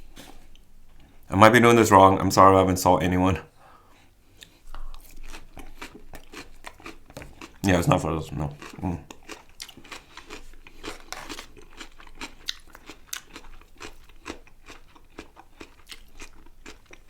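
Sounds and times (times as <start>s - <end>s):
crunchy chewing: 4.0s - 17.0s.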